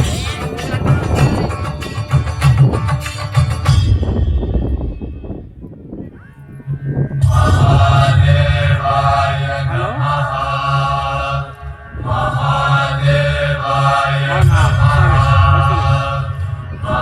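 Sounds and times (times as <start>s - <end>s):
music: 0.0s - 17.0s
deep low drone: 3.7s - 17.0s
group chanting a mantra: 7.2s - 17.0s.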